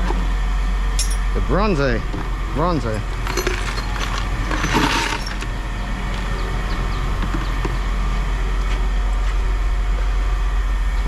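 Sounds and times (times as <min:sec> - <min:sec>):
light clinks: 0:02.9 - 0:06.4.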